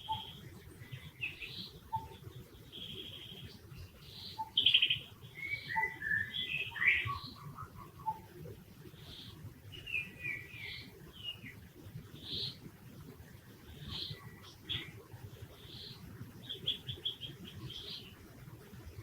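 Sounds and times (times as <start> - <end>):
high-pitched chirping calls: 0.0 - 11.3.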